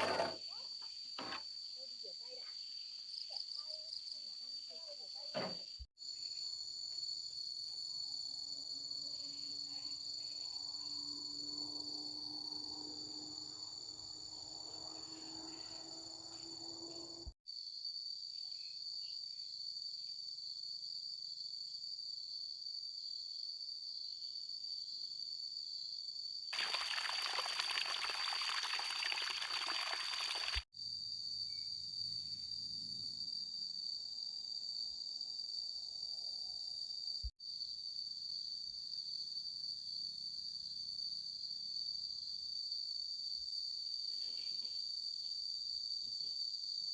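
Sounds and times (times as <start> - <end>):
crickets chirping: 0.4 - 46.9
water pouring and splashing: 26.6 - 30.6.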